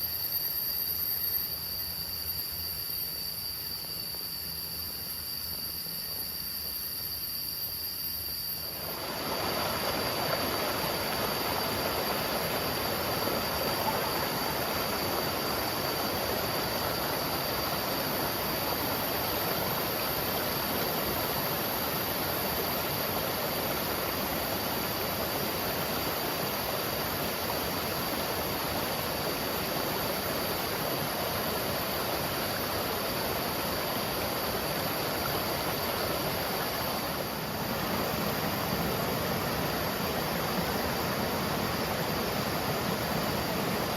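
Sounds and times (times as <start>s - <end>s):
insects chirring: 0.0s - 43.9s
waterfall rushing: 8.9s - 20.5s.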